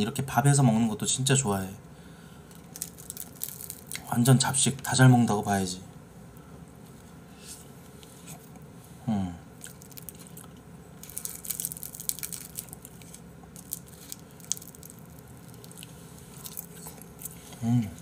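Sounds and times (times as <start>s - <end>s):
man chewing with mouth smacks: 9.6s - 18.0s.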